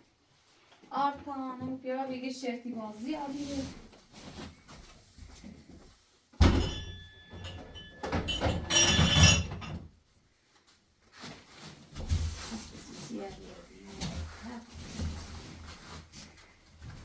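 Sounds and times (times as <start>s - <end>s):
thud: 6.4s - 7.0s.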